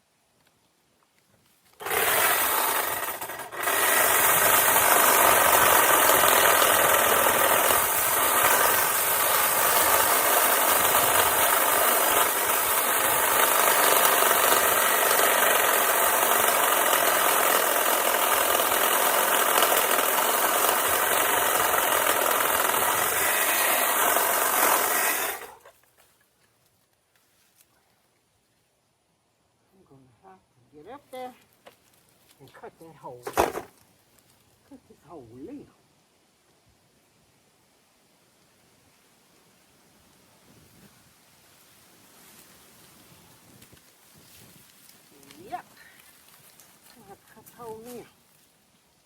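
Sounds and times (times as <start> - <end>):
electric saw cutting branches: 1.8 - 25.8, 33.3 - 33.7.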